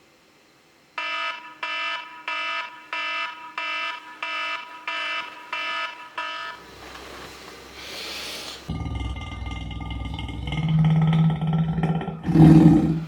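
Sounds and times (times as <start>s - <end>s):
electronic alarm beeping: 1.0s - 6.7s.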